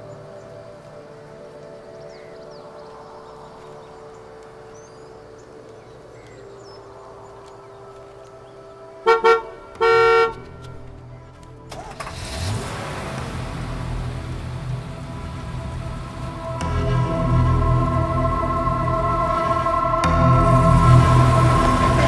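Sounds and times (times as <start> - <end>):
quiet steady drone: 0.0 - 22.0
horn toots: 9.0 - 10.8
rushing noise with low rumble: 12.2 - 22.0.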